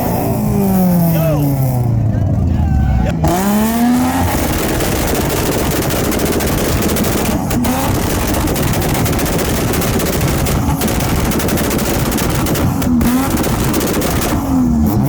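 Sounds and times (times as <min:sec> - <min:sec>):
car exhaust popping on rev limiter: 0:03.3 - 0:15.0.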